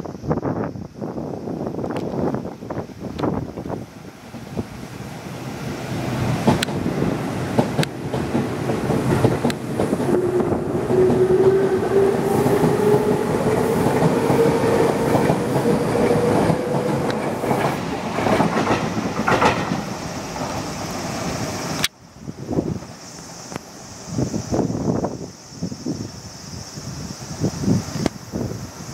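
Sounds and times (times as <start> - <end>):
train wheels clattering over rail joints: 6.3 - 11.6, 12.6 - 21.3.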